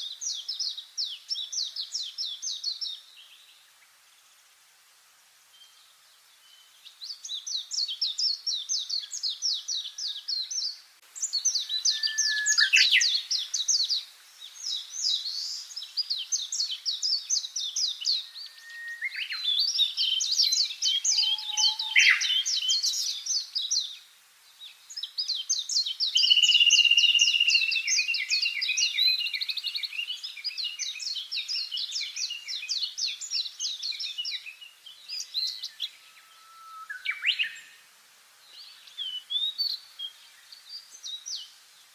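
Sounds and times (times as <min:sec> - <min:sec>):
songbird twittering: 0:05.5 - 0:37.8.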